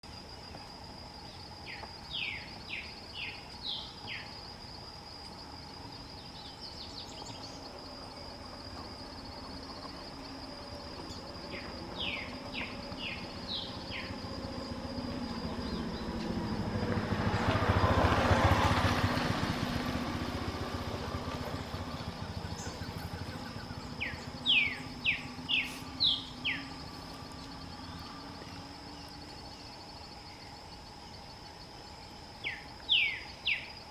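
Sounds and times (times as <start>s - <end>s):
songbird singing: 0.0s - 33.9s
vehicle passing: 7.2s - 29.9s.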